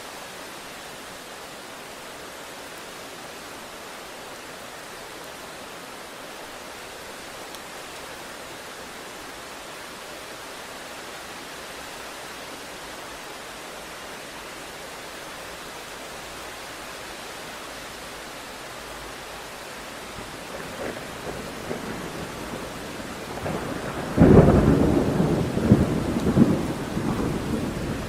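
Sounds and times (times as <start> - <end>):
heavy rain hiss: 0.0 - 28.0
thunder rumble: 20.1 - 28.0.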